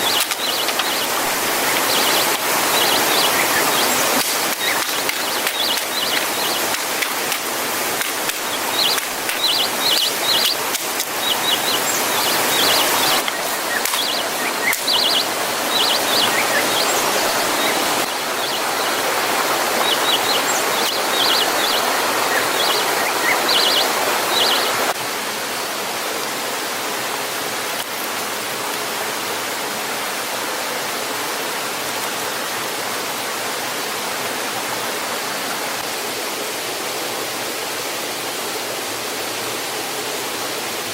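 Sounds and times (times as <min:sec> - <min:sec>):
small bird chirping: 0:00.0 - 0:07.4, 0:08.0 - 0:17.8
rushing falling water: 0:00.0 - 0:40.9.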